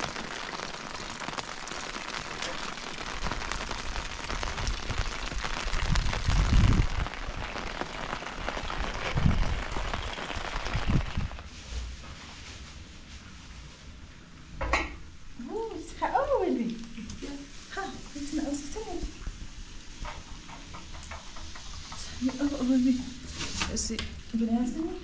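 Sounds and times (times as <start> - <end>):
rain falling: 0.0 - 11.6, 15.3 - 25.0
low rumbles of thunder: 3.5 - 7.7.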